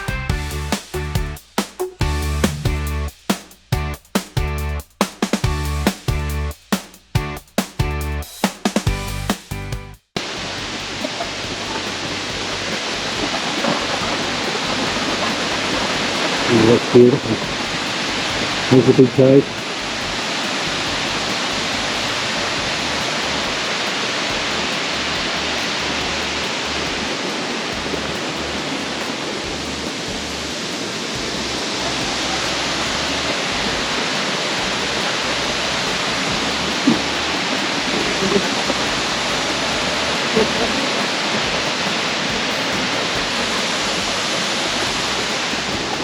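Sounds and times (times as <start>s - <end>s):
waterfall rushing: 10.2s - 46.0s.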